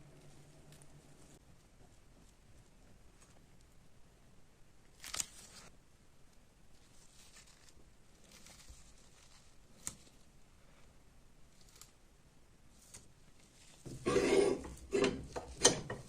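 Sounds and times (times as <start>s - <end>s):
scraping and rustling: 6.7s - 10.9s, 12.7s - 16.0s.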